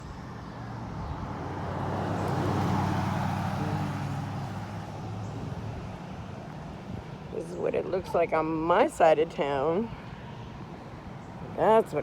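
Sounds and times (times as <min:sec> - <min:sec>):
vehicle passing by: 0:00.0 - 0:08.2.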